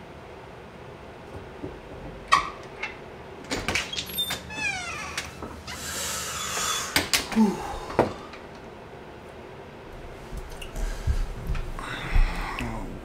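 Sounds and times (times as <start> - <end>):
door squeak: 3.5 - 5.8.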